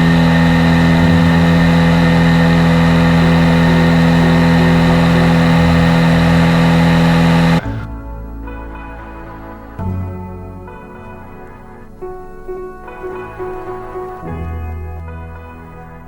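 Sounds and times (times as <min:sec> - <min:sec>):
propeller plane engine drone: 0:00.0 - 0:07.7.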